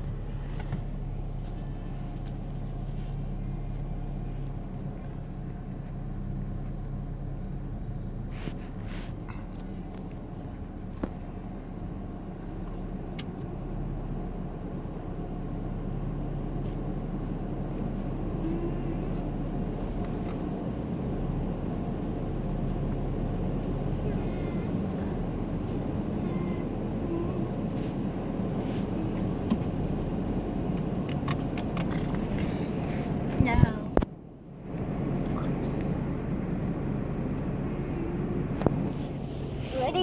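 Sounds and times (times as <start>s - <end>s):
car idling hum from cabin: 0.0s - 40.0s.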